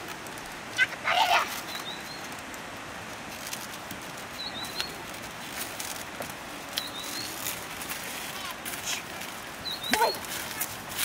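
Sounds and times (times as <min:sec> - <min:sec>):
background hiss: 0:00.0 - 0:11.0
bird chirping: 0:04.4 - 0:05.0, 0:06.8 - 0:07.4, 0:09.6 - 0:10.2.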